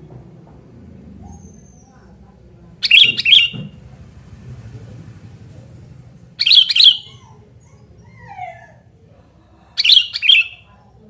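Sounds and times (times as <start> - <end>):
bird chirping: 2.8 - 3.7, 6.4 - 7.8, 9.8 - 10.8.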